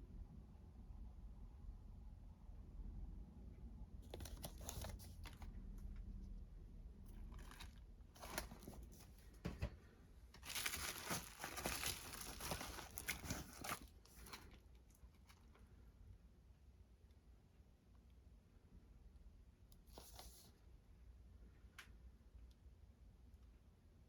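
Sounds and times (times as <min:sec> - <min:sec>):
packaging crinkling and tearing: 0:07.1 - 0:09.1, 0:10.4 - 0:15.6.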